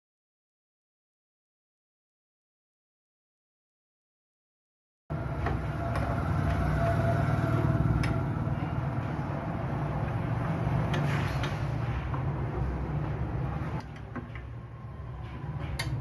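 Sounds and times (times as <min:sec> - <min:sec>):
low mechanical hum: 0:05.1 - 0:16.0.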